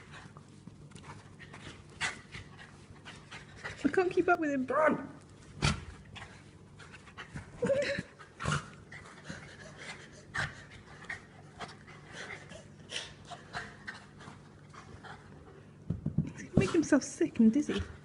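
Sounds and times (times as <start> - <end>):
dog panting hard: 0.0 - 4.1, 8.2 - 15.6.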